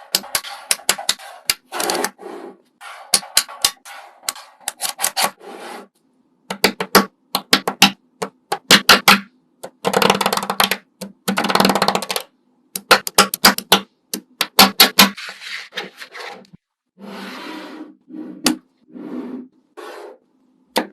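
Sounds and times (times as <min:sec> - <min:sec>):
sharp clicks and taps: 0:06.5 - 0:15.2.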